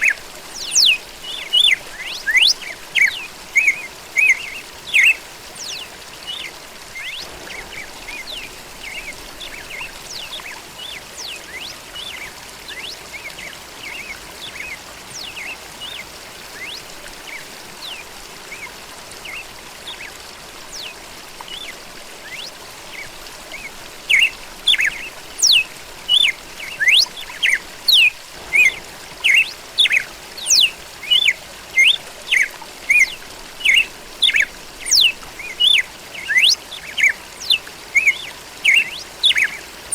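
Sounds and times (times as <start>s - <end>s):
running water trickling: 0.0s - 39.9s
songbirds chirping: 0.0s - 39.9s
loud repeated bird call: 23.5s - 39.7s.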